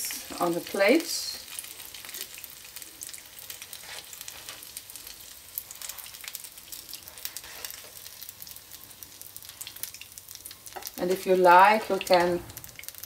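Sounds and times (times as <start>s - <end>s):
pancakes sizzling in hot oil: 0.0s - 13.0s.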